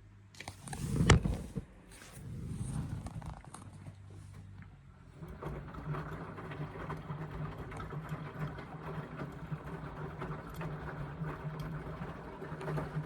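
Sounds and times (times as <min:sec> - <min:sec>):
washing machine motor humming: 0:04.3 - 0:13.0
wet laundry tumbling: 0:05.1 - 0:13.0.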